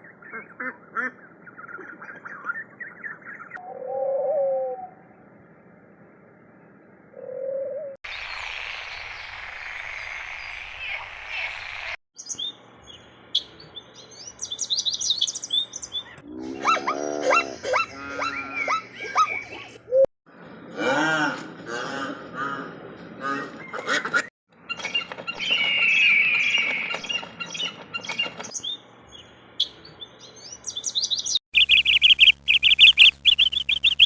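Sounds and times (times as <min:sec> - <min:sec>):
birds chirping and calling: 0:00.0 - 0:04.8, 0:07.2 - 0:20.0, 0:23.4 - 0:34.0.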